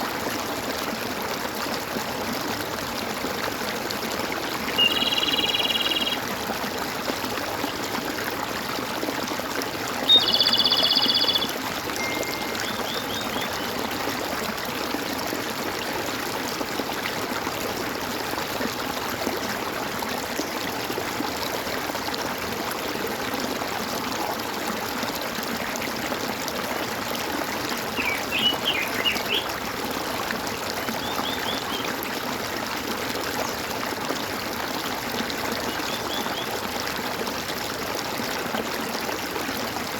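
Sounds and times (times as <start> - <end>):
stream water trickling: 0.0 - 39.9
birds calling: 4.7 - 6.2, 10.1 - 13.8, 28.0 - 29.5.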